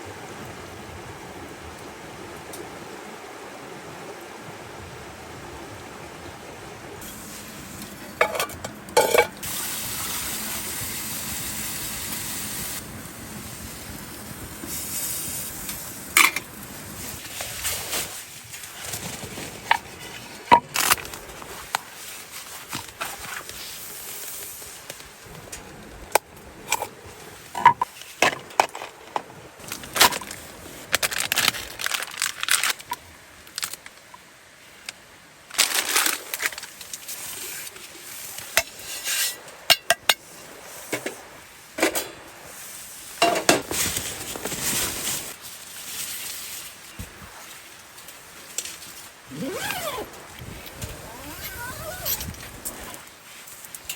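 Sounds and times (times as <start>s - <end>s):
metal cookware clinking: 8.2s - 9.4s
scraping and crunching: 35.5s - 38.0s, 43.6s - 53.9s.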